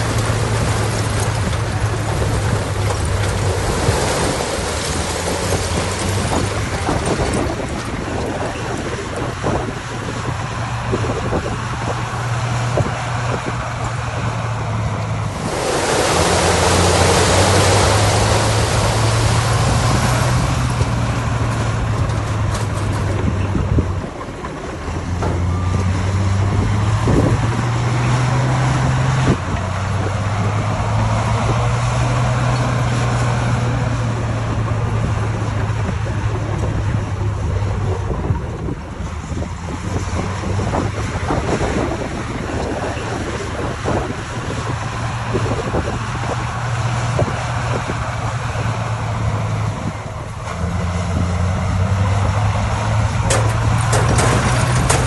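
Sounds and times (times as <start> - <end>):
heavy diesel engine under load: 0.0 - 55.0
loud rushing noise: 15.1 - 21.9.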